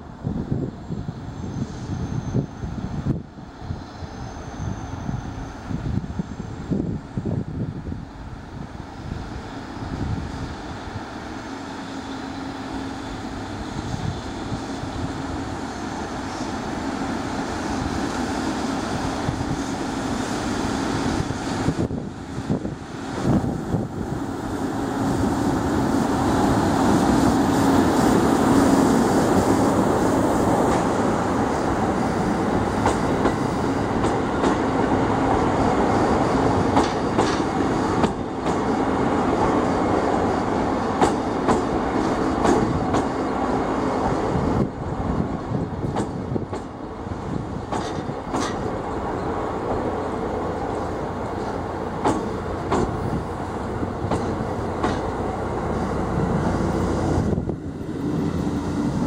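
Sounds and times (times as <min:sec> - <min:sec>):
train wheels rumbling on rails: 0:00.0 - 0:59.0
wheels clacking over rail joints: 0:36.6 - 0:38.7, 0:40.9 - 0:43.2, 0:47.6 - 0:49.5, 0:50.7 - 0:55.3.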